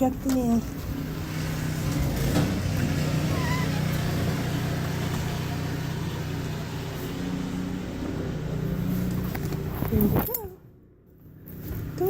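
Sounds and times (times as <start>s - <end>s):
faint squeak: 3.2s - 4.2s.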